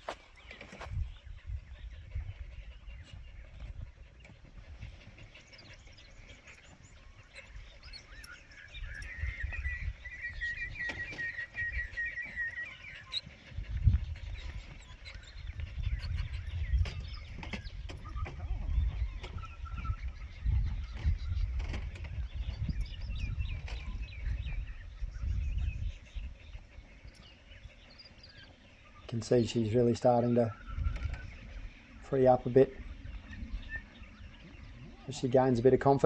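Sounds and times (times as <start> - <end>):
birds chirping: 0.0 - 36.0
bird trilling call: 4.7 - 36.0.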